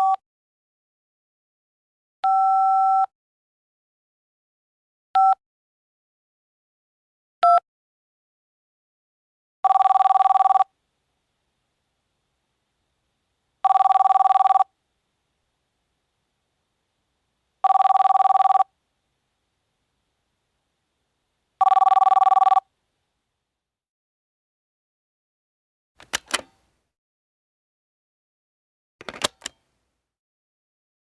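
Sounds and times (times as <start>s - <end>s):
telephone ringing: 9.7s - 10.7s, 13.6s - 14.7s, 17.6s - 18.7s, 21.6s - 22.6s, 26.0s - 26.6s, 29.0s - 29.6s.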